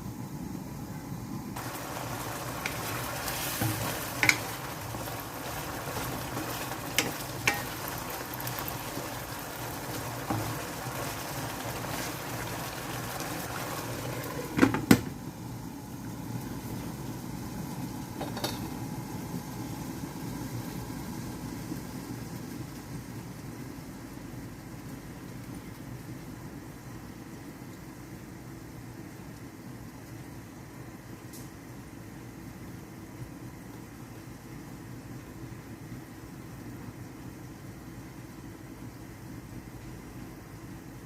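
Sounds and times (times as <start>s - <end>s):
chicken wings sizzling in a pan: 1.6s - 31.7s
utensil clicking against pan: 4.2s - 4.5s.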